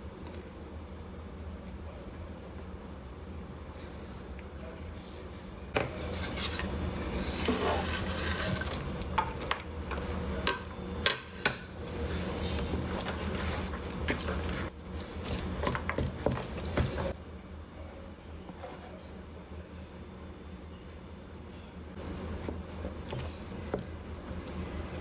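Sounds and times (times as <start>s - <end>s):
utensil scraping in bowl: 5.8s - 9.0s, 11.9s - 17.2s.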